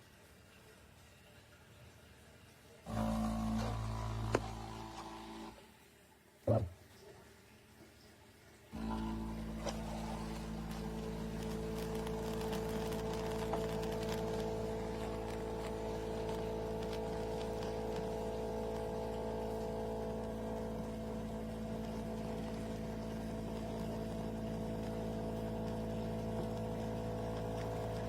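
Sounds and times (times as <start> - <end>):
espresso machine humming: 2.9 - 5.6, 8.8 - 28.0.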